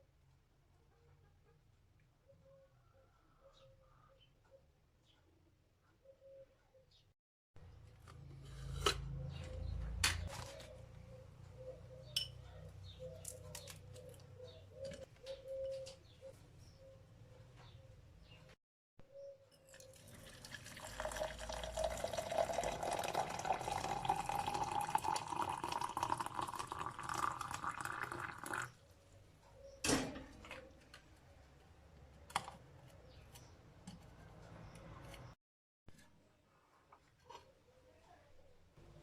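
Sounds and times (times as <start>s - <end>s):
tap water filling container: 19.8s - 28.7s.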